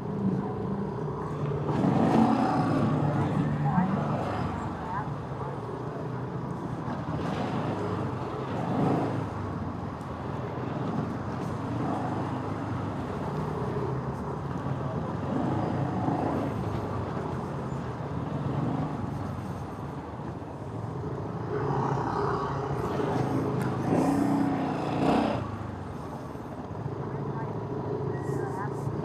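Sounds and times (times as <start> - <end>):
road noise: 0.0 - 29.0
motorcycle engine: 22.8 - 25.8.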